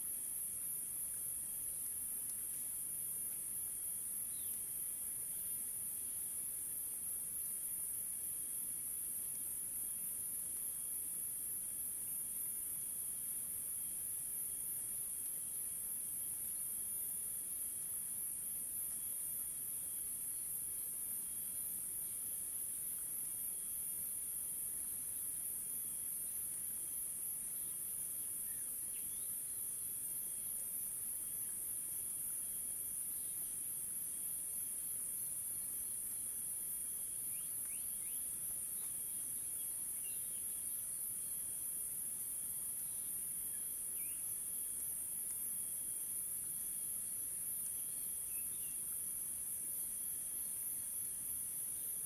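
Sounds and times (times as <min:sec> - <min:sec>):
insects chorus: 0:00.0 - 0:52.0
faint bird chirps: 0:37.3 - 0:40.6, 0:43.5 - 0:44.3, 0:47.8 - 0:48.9.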